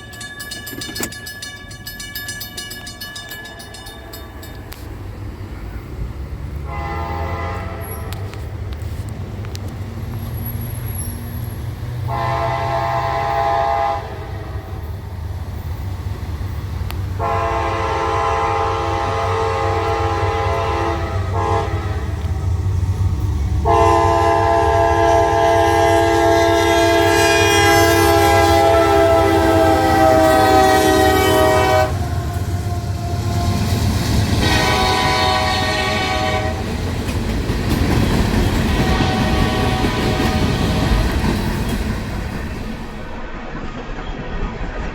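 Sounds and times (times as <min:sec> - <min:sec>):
rolling rail noise: 0:00.0 - 0:44.9
locomotive air horn blasts: 0:06.6 - 0:08.4, 0:12.1 - 0:14.7, 0:17.2 - 0:22.2, 0:23.6 - 0:33.8, 0:34.4 - 0:36.7, 0:38.8 - 0:40.9.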